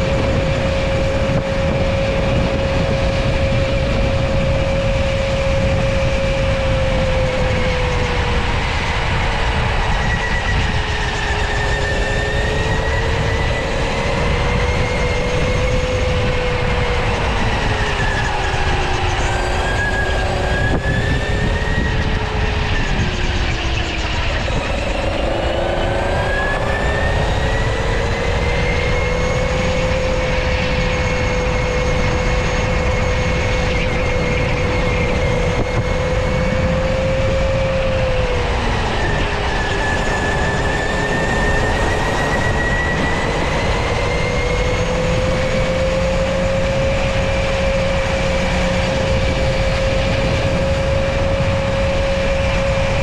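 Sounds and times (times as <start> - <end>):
electric go-kart motor whining: 0.0 - 53.0
low rumble: 12.7 - 53.0.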